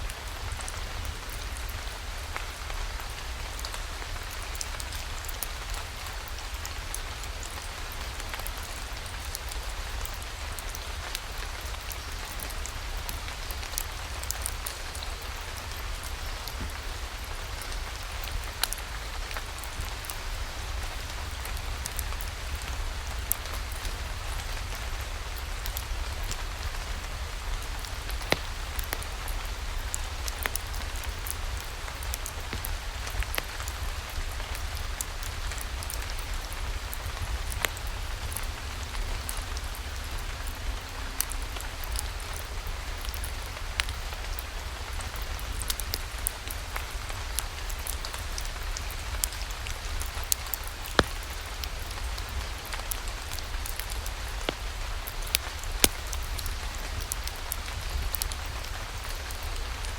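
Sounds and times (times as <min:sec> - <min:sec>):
ticks and drips: 0:47.4 - 0:59.4.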